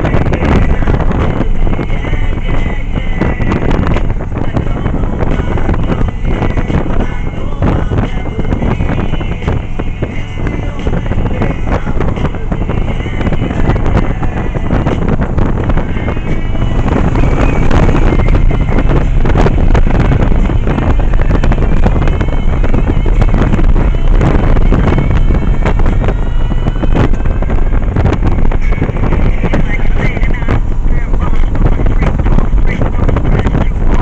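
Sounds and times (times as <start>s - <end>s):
road rumble: 0.0s - 34.0s
wind buffeting microphone: 0.0s - 34.0s
motorcycle engine: 0.7s - 27.7s.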